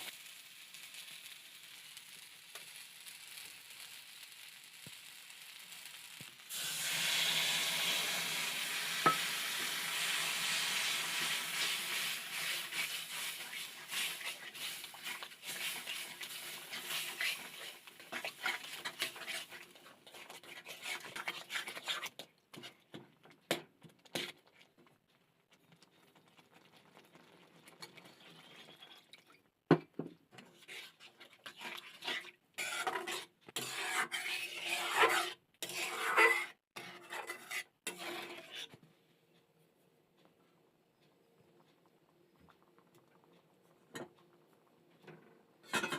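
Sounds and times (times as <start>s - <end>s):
utensils scraping dishes: 30.6s - 38.7s.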